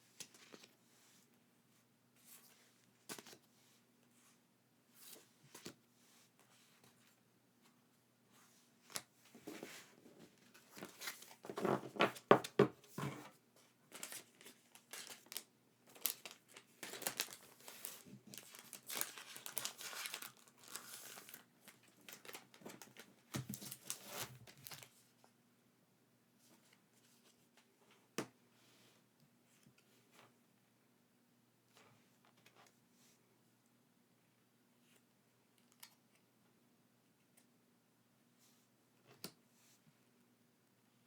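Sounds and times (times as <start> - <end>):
packaging crinkling and tearing: 13.9 - 24.9.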